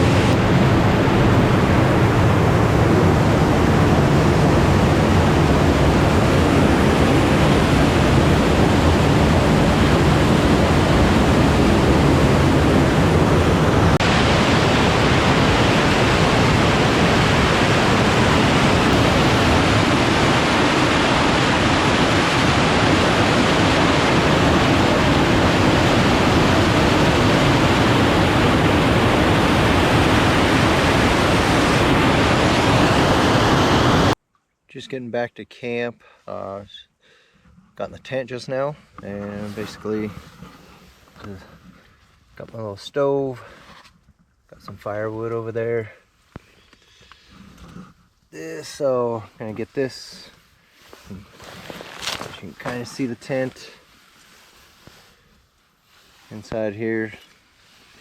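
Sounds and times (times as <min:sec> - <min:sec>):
waterfall rushing: 0:00.0 - 0:34.2.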